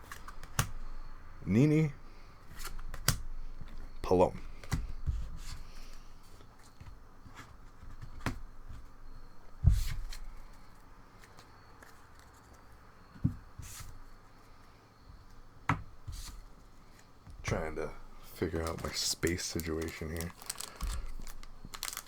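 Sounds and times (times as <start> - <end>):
cards rustled on a tabletop: 2.4 - 8.9, 9.7 - 12.9, 16.0 - 22.0.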